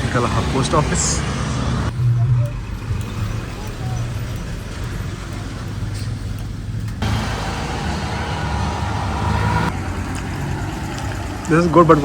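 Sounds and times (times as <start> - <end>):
vehicle engine running: 0.0 - 9.8
street noise: 0.0 - 12.0.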